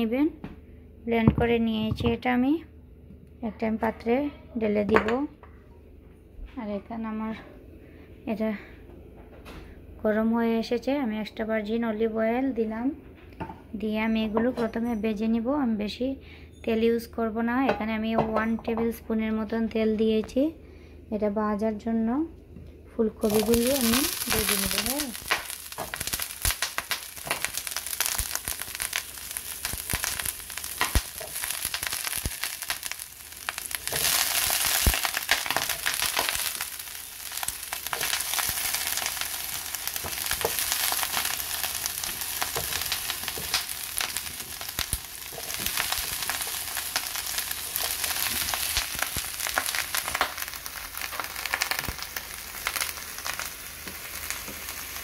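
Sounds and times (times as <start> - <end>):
vegetables sizzling in a frying pan: 23.2 - 55.0.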